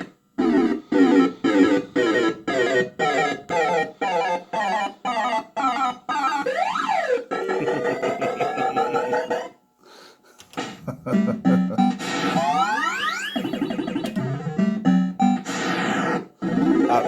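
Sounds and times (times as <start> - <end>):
fruit machine bleeping notes: 11.1 - 15.5.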